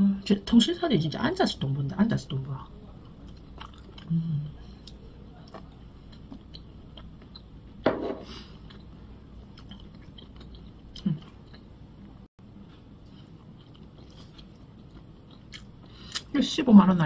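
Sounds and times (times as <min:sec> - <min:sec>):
person chewing food: 0:02.8 - 0:16.3.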